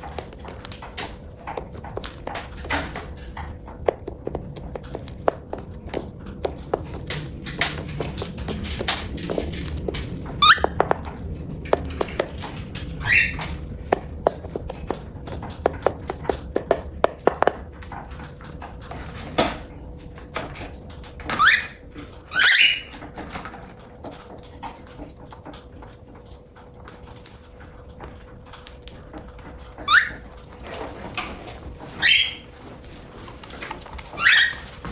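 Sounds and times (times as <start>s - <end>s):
cockatiel chirping: 10.4s - 10.8s, 13.0s - 13.5s, 21.3s - 23.0s, 29.8s - 30.2s, 32.0s - 32.5s, 34.2s - 34.7s.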